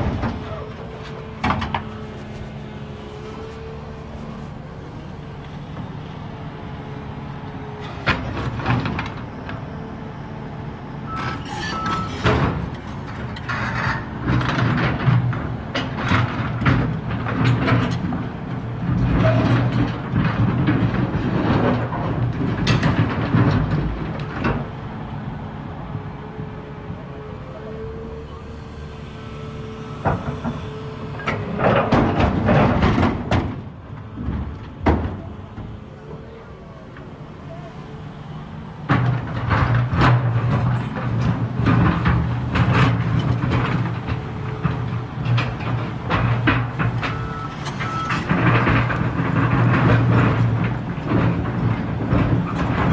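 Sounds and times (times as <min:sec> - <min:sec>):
excavator diesel engine under load: 0:00.0 - 0:52.9
rocks clanking against steel: 0:30.2 - 0:35.8, 0:38.8 - 0:52.9.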